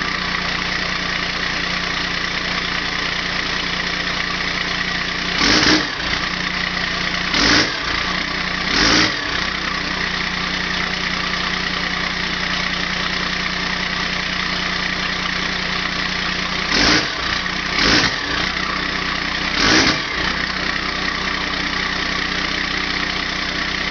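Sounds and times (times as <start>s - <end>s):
diesel engine idling: 0.0s - 23.9s
engine revving: 5.1s - 6.4s, 7.2s - 9.8s, 16.5s - 21.9s.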